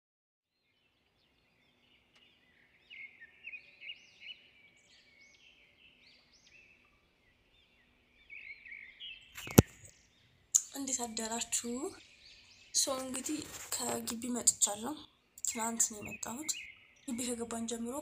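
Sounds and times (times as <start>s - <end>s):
small birds chirping: 0.5s - 18.0s
sharp click: 9.4s - 9.9s.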